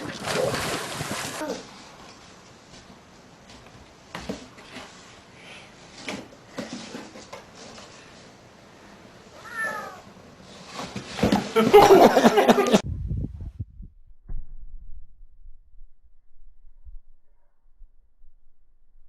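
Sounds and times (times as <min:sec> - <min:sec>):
cat meowing: 0:09.4 - 0:10.1.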